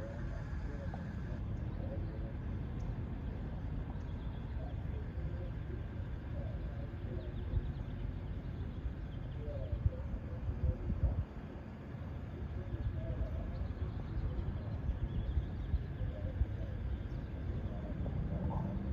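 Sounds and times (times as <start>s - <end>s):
steady low rumble: 0.0s - 18.9s.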